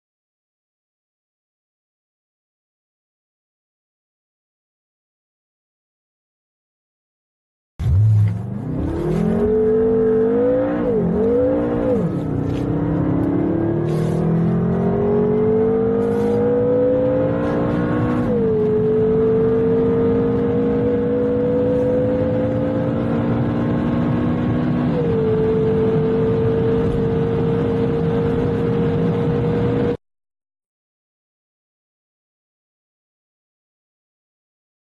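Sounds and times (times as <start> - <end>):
car engine accelerating hard: 7.8 - 30.0.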